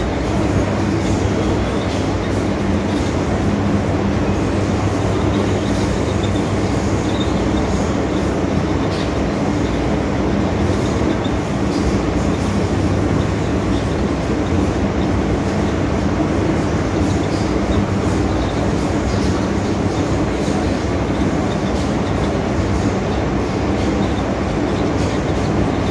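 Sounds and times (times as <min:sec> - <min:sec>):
train wheels rumbling on track: 0:00.0 - 0:25.9.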